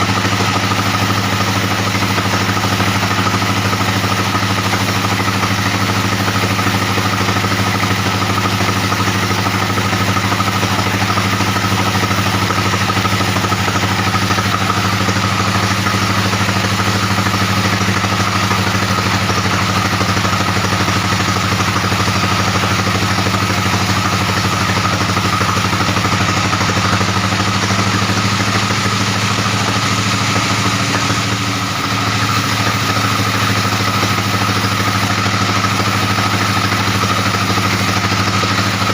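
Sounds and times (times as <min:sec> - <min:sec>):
bandsaw humming: 0:00.0 - 0:38.9.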